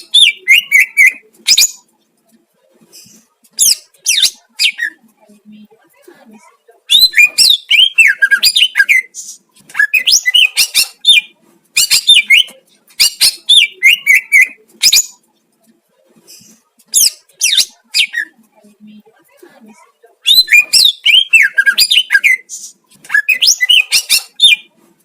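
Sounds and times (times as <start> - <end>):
bird singing whistles and chatter: 0.1 - 1.8, 6.9 - 15.2, 20.2 - 24.7.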